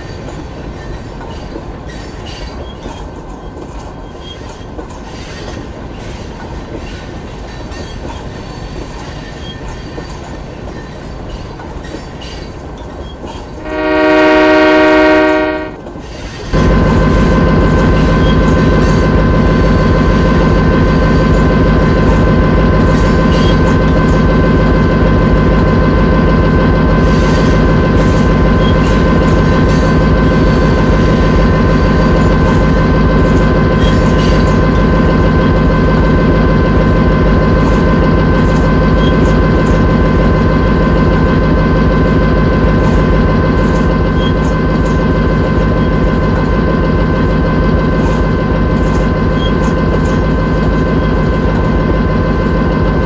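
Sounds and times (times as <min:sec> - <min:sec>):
locomotive engine rumbling: 0:12.6 - 0:53.0
train horn: 0:13.6 - 0:15.9.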